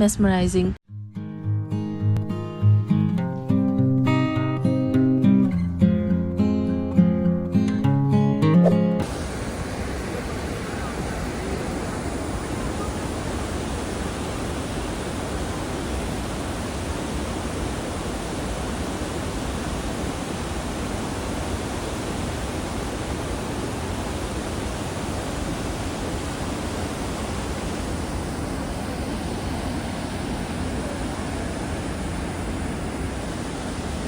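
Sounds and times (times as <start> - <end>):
waterfall roaring: 9.0 - 34.0.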